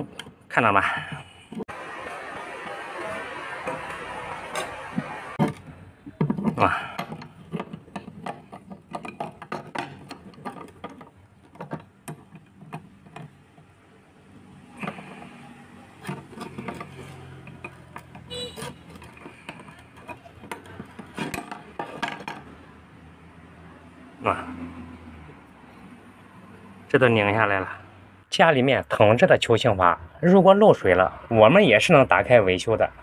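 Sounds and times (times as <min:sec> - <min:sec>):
metal parts clattering: 0:16.0 - 0:22.5.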